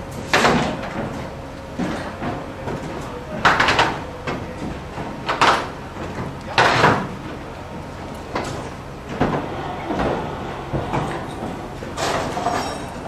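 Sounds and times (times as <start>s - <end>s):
roofing scraping and knocking: 8.3s - 13.0s.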